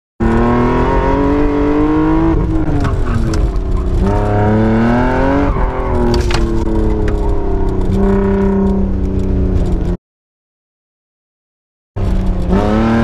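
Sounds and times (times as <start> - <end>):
car engine revving: 0.2 - 10.0, 12.0 - 13.0.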